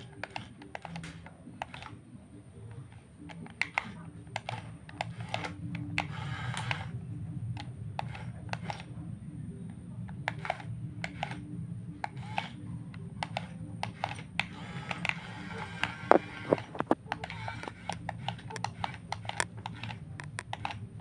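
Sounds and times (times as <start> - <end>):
electric motors humming: 0.0 - 21.0
clicks and rattles: 13.2 - 20.9.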